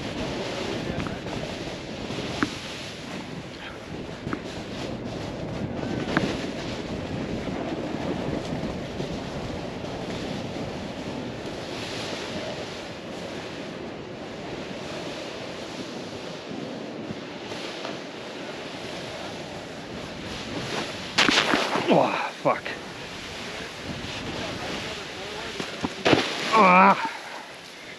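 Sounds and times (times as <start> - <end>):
snowboard sliding through snow: 0.0 - 27.9
wind buffeting microphone: 0.0 - 27.9.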